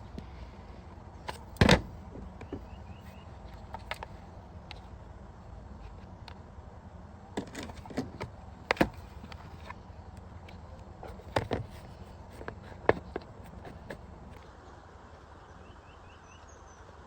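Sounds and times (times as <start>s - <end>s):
sharp clicks and knocks: 7.4s - 9.8s, 10.5s - 14.4s.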